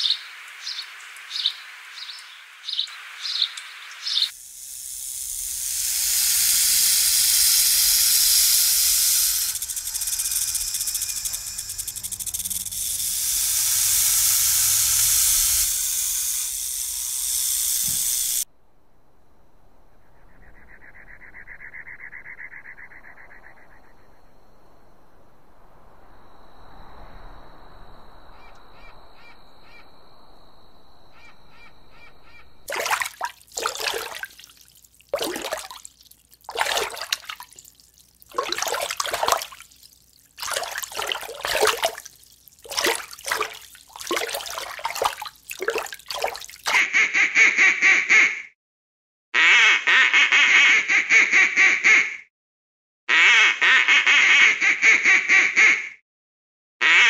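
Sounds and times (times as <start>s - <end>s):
rapidly pulsed bird calls: 0.0s - 4.4s, 20.0s - 24.2s, 31.1s - 34.6s.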